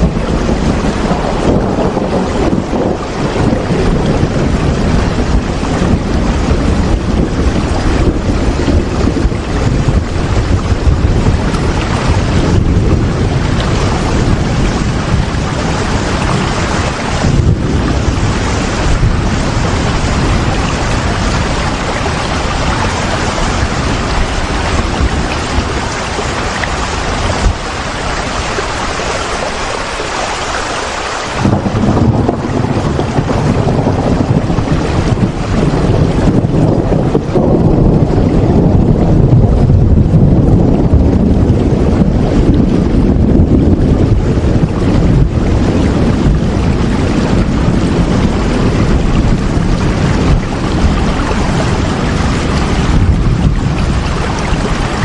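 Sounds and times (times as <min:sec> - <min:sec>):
deep low rumble: 0:00.0 - 0:27.7, 0:31.4 - 0:55.0
rain hiss: 0:19.6 - 0:31.8.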